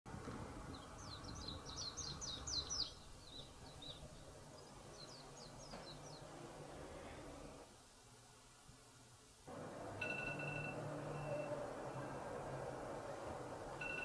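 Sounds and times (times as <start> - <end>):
faint background noise: 0.1 - 14.0
small birds chirping: 0.6 - 6.6.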